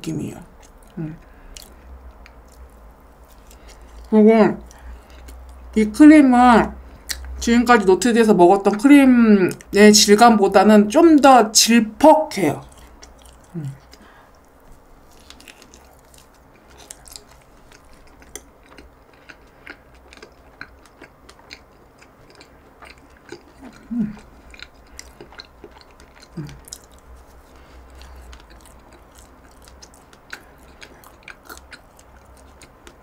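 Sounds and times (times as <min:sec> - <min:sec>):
person chewing a donut: 0:00.5 - 0:05.8, 0:12.6 - 0:33.0
person humming mm: 0:23.8 - 0:24.2, 0:26.4 - 0:26.6.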